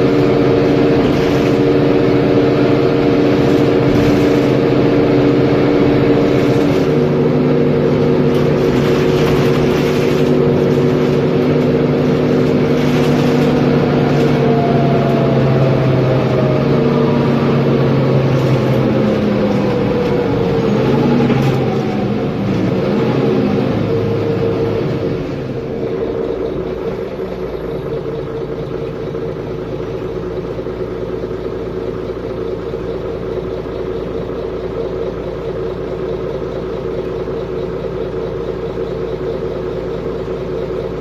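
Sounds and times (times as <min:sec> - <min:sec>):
high whine sliding downward: 0:00.0 - 0:25.1
bus diesel engine running: 0:00.0 - 0:41.0.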